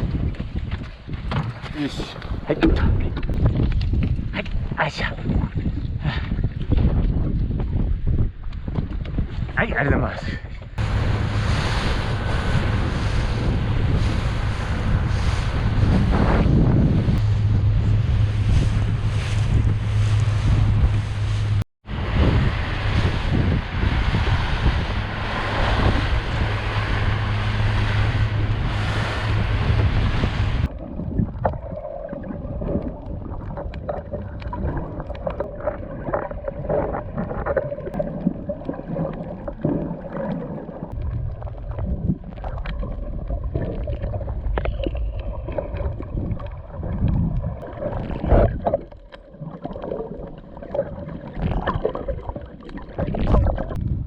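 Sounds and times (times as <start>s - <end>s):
wind buffeting microphone: 0.0s - 38.5s, 40.8s - 48.9s, 53.0s - 54.0s
sea waves: 10.7s - 53.8s
bubbling: 10.8s - 54.0s.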